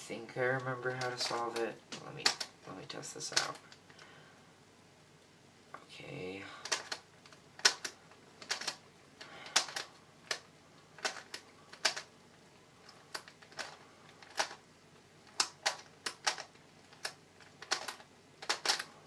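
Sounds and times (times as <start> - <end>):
twisty puzzle clicking: 0.6 - 2.7, 3.3 - 4.0, 6.6 - 12.1, 12.8 - 19.0.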